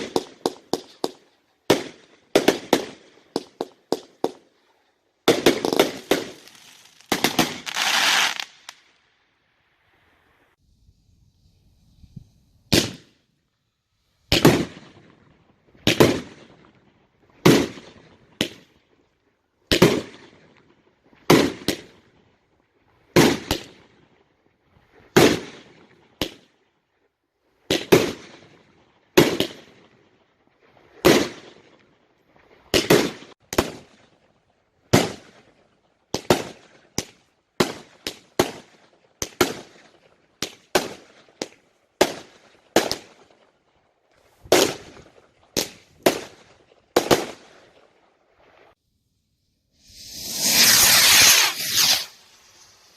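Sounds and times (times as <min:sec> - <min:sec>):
fireworks banging: 0:00.0 - 0:04.4, 0:05.2 - 0:08.8, 0:49.8 - 0:52.9.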